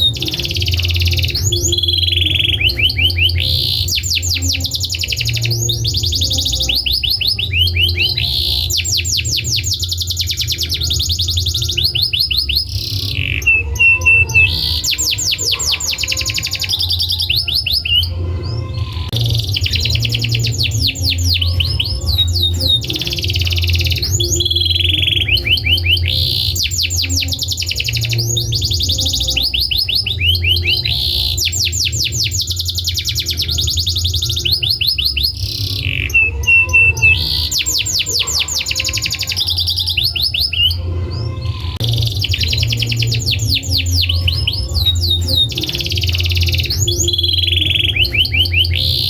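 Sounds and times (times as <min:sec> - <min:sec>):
canary singing trills: 0:00.0 - 0:49.0.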